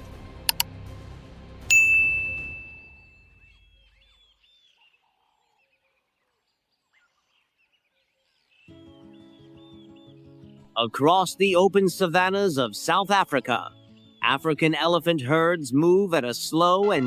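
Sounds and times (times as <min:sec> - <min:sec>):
background music: 0:00.0 - 0:03.8, 0:08.7 - 0:17.0
bell-like ding: 0:01.7 - 0:03.5.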